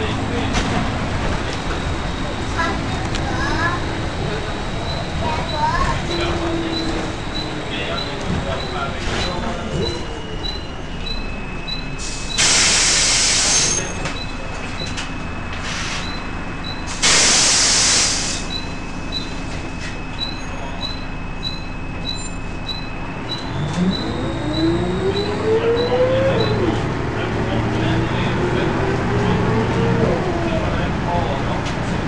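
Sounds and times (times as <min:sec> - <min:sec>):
bus engine revving: 0:00.0 - 0:14.2, 0:22.1 - 0:32.0
bus high-pitched whine: 0:00.0 - 0:32.0
air hissing loudly: 0:12.0 - 0:13.8, 0:16.9 - 0:18.5.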